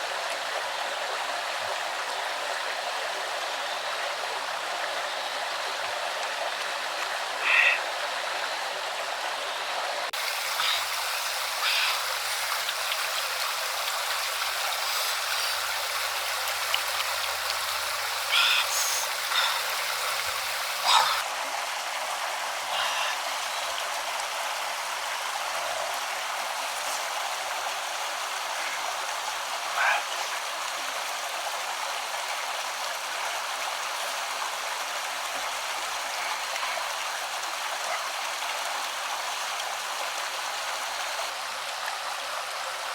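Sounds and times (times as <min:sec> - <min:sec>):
flowing stream water: 0:00.0 - 0:42.9.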